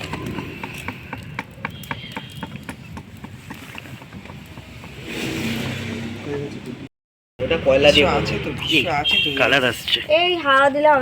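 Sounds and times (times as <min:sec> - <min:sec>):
fire pops and snaps: 0:00.0 - 0:05.8
cooking fire crackling: 0:00.0 - 0:11.0.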